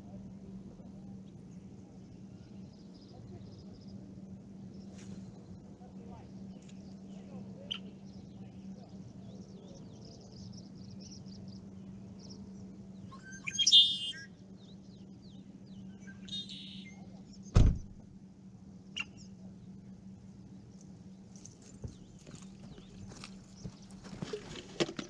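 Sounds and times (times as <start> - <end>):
steady low hum: 0.0 - 25.0
wild birds calling: 6.4 - 17.6
small bird chirps: 9.2 - 17.5, 18.9 - 19.4.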